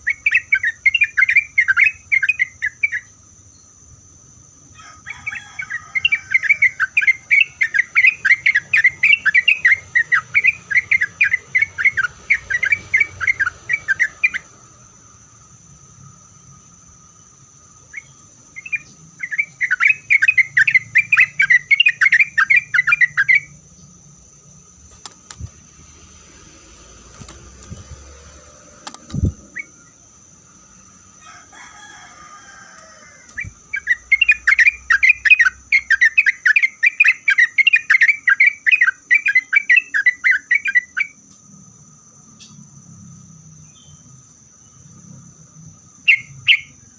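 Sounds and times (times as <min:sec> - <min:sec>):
bird singing rapid chattering notes: 0:00.0 - 0:03.8, 0:05.2 - 0:14.6, 0:16.5 - 0:31.1, 0:33.3 - 0:41.3, 0:45.8 - 0:46.9.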